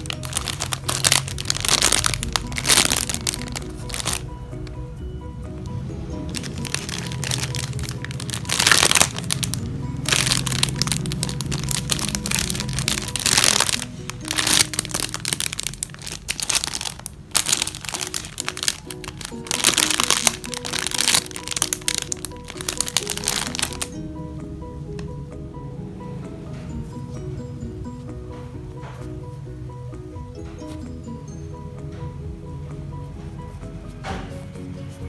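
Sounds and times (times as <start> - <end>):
squishy toys crinkling: 0.0 - 4.3, 6.3 - 23.9
background music: 0.0 - 35.0.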